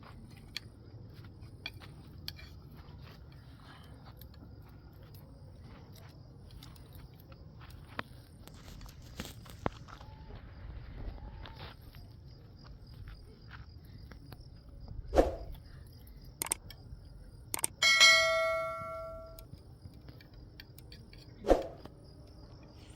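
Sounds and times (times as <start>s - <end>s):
crickets chirping: 0.0s - 22.9s
struck metallic bell-like ring: 17.8s - 19.4s.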